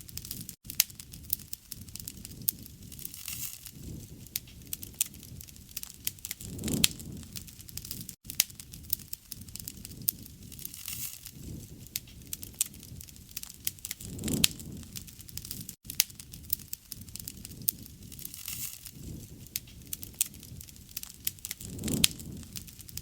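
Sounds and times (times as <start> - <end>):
campfire crackling and popping: 0.0 - 23.0
low flame rumble: 0.0 - 23.0.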